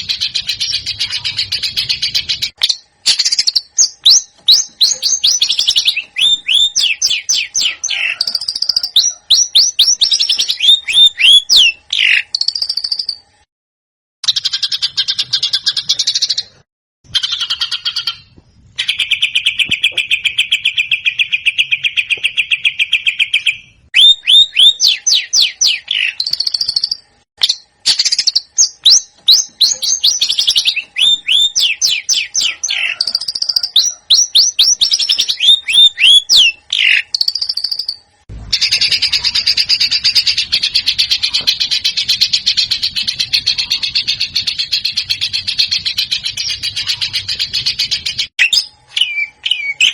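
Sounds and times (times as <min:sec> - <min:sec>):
songbird trilling and whistling: 0:00.0 - 0:13.2, 0:17.1 - 0:49.9.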